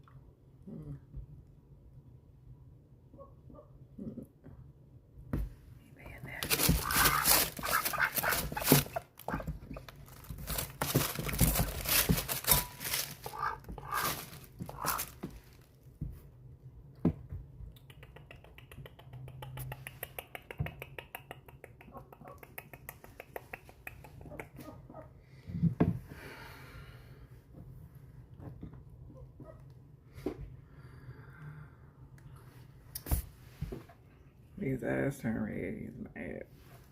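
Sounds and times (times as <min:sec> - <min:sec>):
ducks squeaking and clicking: 0:06.6 - 0:10.6, 0:11.4 - 0:15.2.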